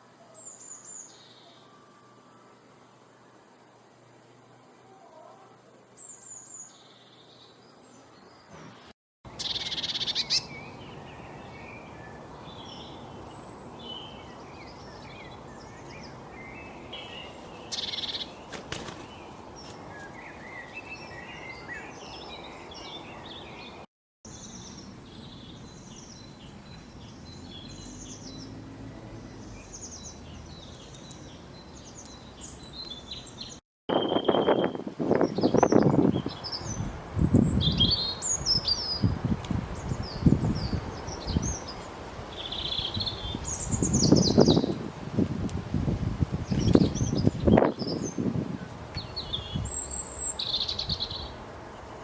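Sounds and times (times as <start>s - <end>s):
background hiss: 0.0s - 23.7s
songbirds chirping and trilling: 0.0s - 44.8s, 46.4s - 52.0s.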